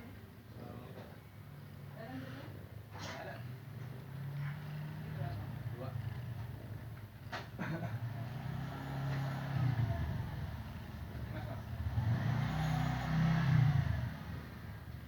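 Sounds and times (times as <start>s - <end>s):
vehicle engine passing: 7.9s - 14.8s.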